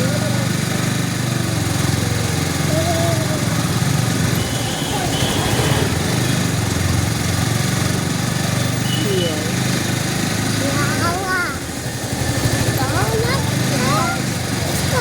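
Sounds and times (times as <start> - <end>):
faint voices: 0.0 - 5.9
motorcycle engine pulsing: 0.0 - 15.0.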